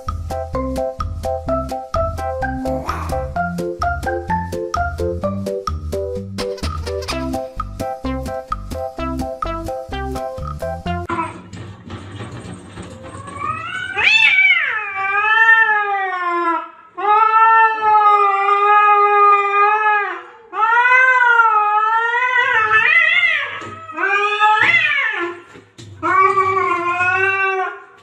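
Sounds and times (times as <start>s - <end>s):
cat yowling: 2.8s - 3.3s, 13.1s - 25.4s, 26.1s - 28.0s.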